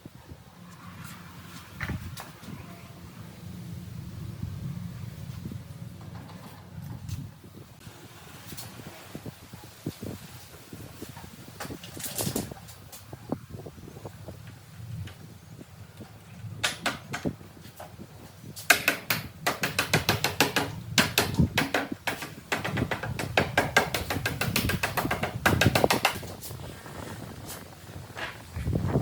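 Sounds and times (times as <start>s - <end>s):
sharp knocks and taps: 18.6s - 26.3s.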